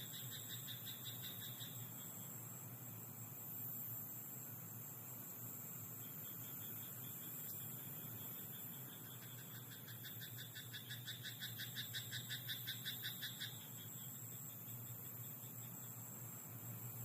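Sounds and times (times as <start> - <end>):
steady high hiss: 0.0 - 17.0
frog croaking: 0.1 - 1.8, 8.2 - 13.8.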